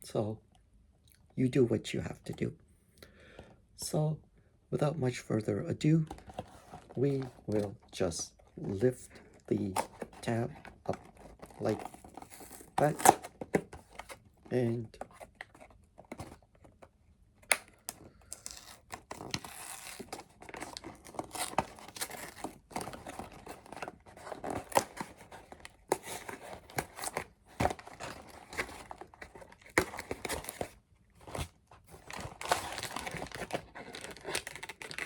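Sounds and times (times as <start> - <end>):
packaging crinkling: 6.1 - 16.8, 17.4 - 35.0
cardboard box ripping: 9.6 - 16.4, 18.3 - 35.0.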